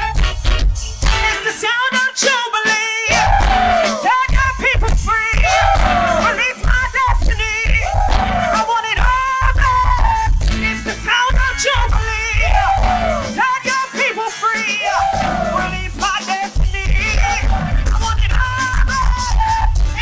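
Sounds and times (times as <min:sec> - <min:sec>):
band bass and drums: 0:00.0 - 0:20.0
choir singing: 0:03.1 - 0:04.3, 0:05.4 - 0:06.8, 0:07.8 - 0:08.8, 0:12.4 - 0:16.3, 0:17.2 - 0:17.9.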